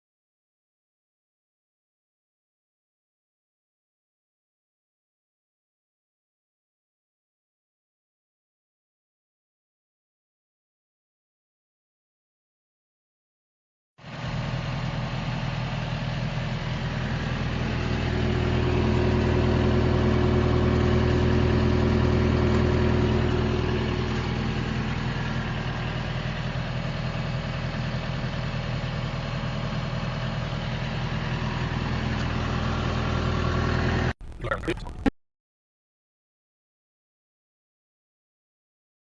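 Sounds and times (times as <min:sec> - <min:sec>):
vehicle engine idling: 0:14.2 - 0:35.0.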